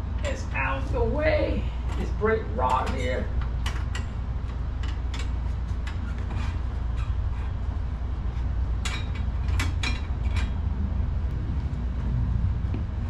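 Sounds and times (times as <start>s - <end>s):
steady low rumble: 0.0s - 13.0s
metal parts clicking and knocking: 2.7s - 7.2s, 8.8s - 10.6s.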